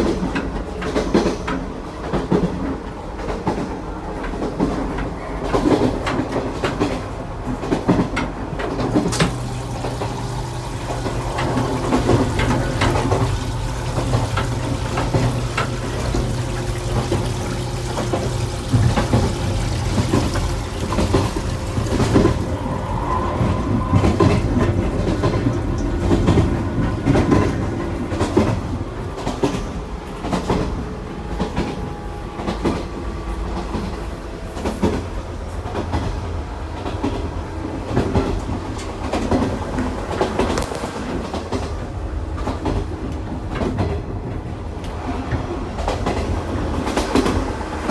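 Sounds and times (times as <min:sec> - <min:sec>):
wheels clicking over rail joints: 0:00.0 - 0:22.8
electric train rumble: 0:00.0 - 0:47.9.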